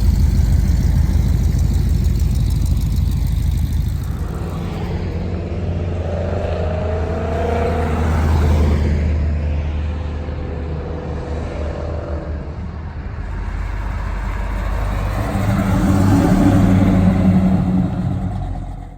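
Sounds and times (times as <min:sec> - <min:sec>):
car engine running: 0:00.0 - 0:05.7, 0:13.2 - 0:18.9.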